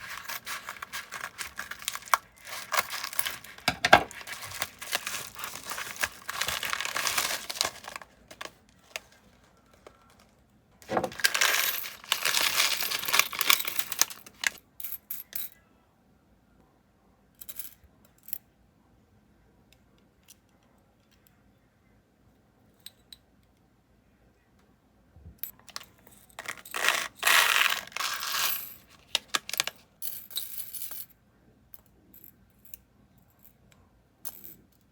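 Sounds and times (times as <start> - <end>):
small hard pieces rattling: 0.0 - 9.1, 10.8 - 14.6, 26.3 - 29.8.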